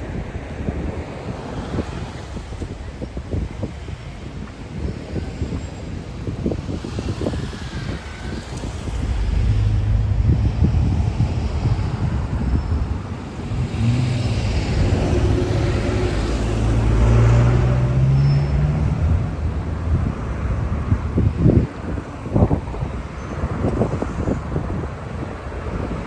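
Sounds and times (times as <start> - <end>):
wind buffeting microphone: 0.0 - 26.0
vehicle engine accelerating past: 8.0 - 19.4.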